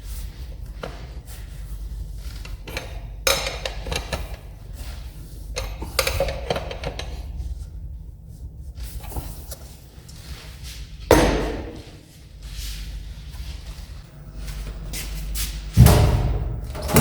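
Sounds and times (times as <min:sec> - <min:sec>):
low steady hum: 0:00.0 - 0:17.0
loud thump: 0:15.8 - 0:17.0.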